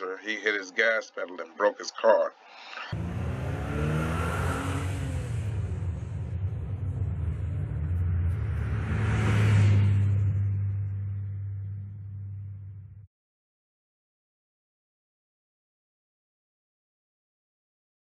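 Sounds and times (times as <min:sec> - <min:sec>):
cars accelerating hard: 0:02.9 - 0:13.0
wind and tyre noise: 0:03.0 - 0:13.0.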